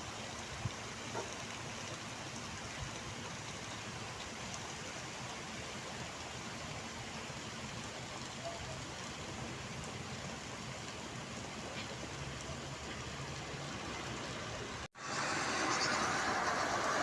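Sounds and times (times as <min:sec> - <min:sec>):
heavy rain hissing: 0:05.0 - 0:17.0.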